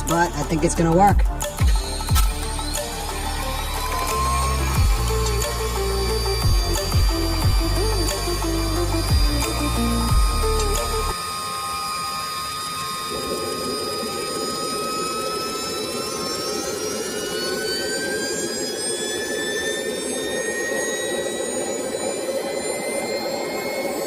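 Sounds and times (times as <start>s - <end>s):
jet engine whine rising: 0.0s - 24.0s.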